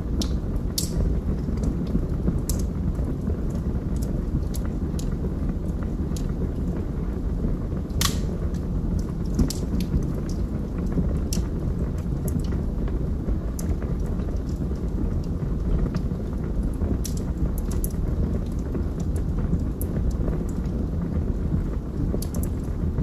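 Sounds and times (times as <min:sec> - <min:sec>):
crackles and pops from logs: 0:00.0 - 0:23.0
low rumble of flames: 0:00.0 - 0:23.0.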